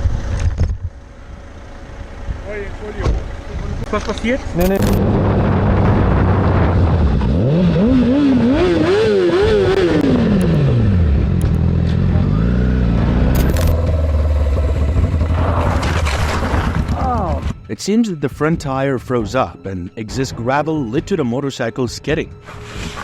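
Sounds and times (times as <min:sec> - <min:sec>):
motorcycle engine revving: 0:03.2 - 0:17.5.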